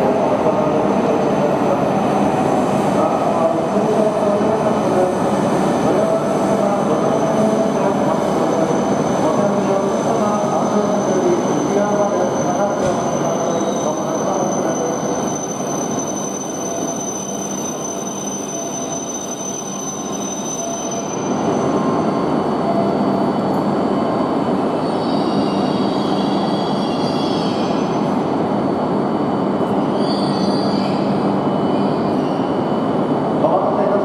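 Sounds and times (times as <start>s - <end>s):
faint high brake squeals: 10.1s - 22.0s, 29.7s - 32.8s.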